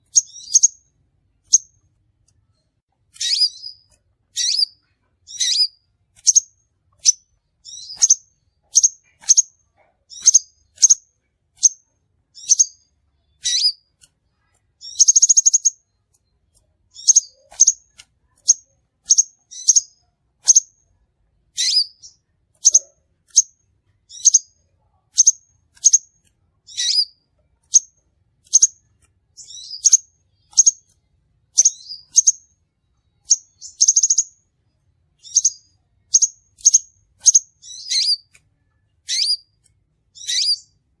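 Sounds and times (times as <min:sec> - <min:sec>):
bird buzzy trill: 0:00.0 - 0:00.8, 0:03.1 - 0:11.0, 0:39.0 - 0:39.5, 0:40.2 - 0:40.7
bird chirping high and sharp: 0:00.0 - 0:01.8, 0:03.1 - 0:14.1, 0:14.8 - 0:16.0, 0:16.9 - 0:20.8, 0:21.5 - 0:32.6, 0:33.2 - 0:34.4, 0:35.2 - 0:38.4, 0:39.0 - 0:40.8.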